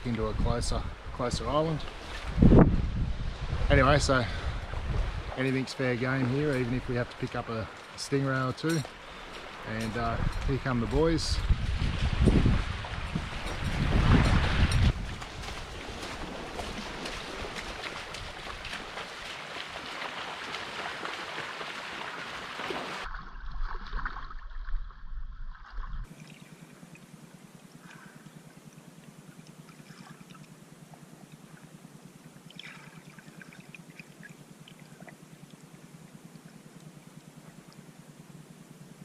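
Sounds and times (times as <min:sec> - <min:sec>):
water splashing and gurgling: 0:01.0 - 0:38.8
steady low hum: 0:24.8 - 0:39.0
faint ticks: 0:26.4 - 0:39.0.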